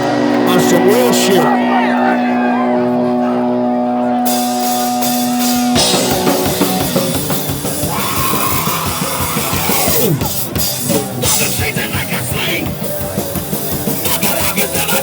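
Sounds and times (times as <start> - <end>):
punk band playing loud: 0.0 - 15.0.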